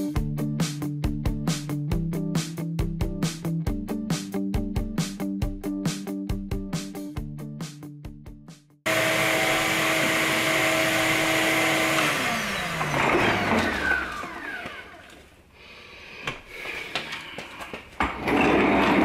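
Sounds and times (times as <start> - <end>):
vacuum cleaner running: 8.9 - 15.4, 18.0 - 19.0.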